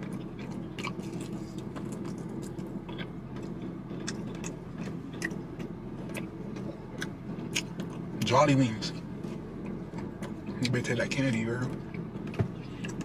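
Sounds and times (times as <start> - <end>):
steady low hum: 0.0 - 13.0
person chewing with wet mouth clicks: 0.2 - 6.3.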